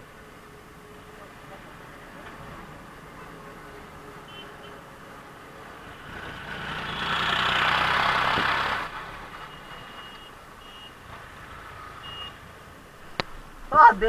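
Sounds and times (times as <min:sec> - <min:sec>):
vehicle passing by: 0:05.6 - 0:10.0.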